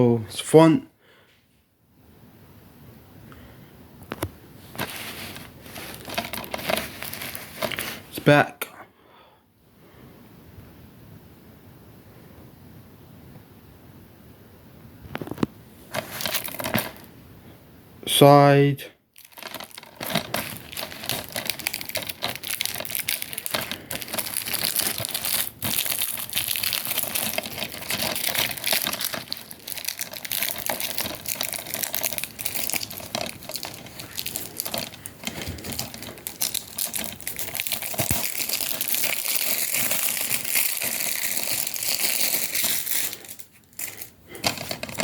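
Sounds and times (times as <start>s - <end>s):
plastic shrink-wrap crinkling: 4.1s - 8.2s, 15.1s - 17.1s, 19.1s - 45.0s.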